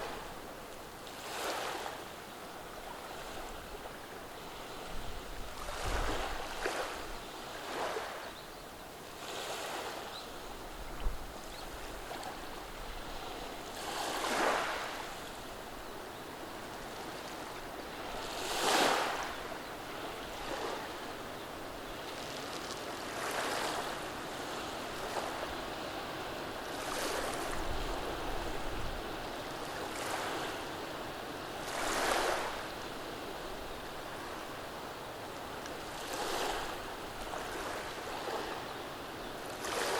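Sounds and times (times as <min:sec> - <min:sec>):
waves washing over pebbles: 0:13.5 - 0:15.2, 0:18.2 - 0:19.5.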